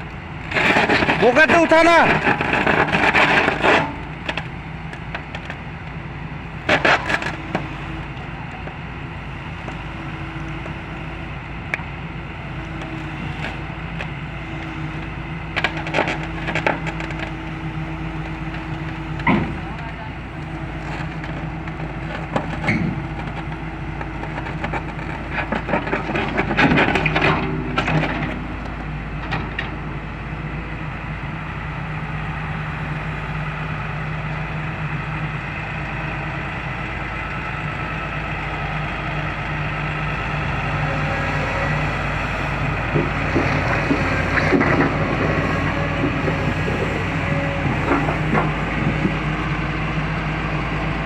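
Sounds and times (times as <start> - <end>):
diesel engine running: 0.0 - 51.0
machine knocking and creaking: 42.3 - 49.3.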